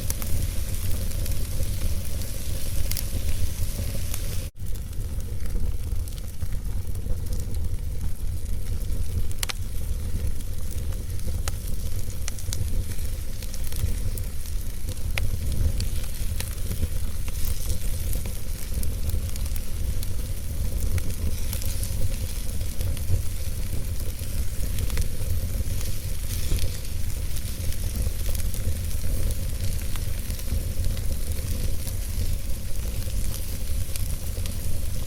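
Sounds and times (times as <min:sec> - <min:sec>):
fire crackling and popping: 0:00.0 - 0:35.0
fire rumbling and hissing: 0:00.0 - 0:35.0.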